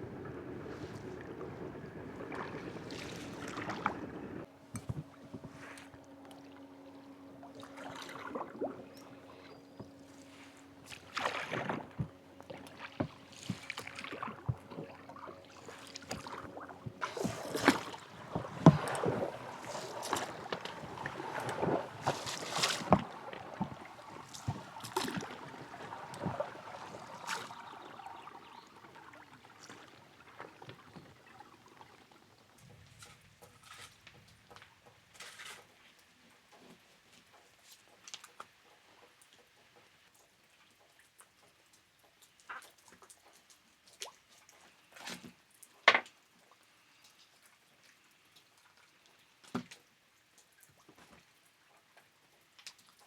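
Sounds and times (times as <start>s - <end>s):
faint steady hum: 0.0s - 33.2s
water splashing and sloshing: 0.0s - 38.4s.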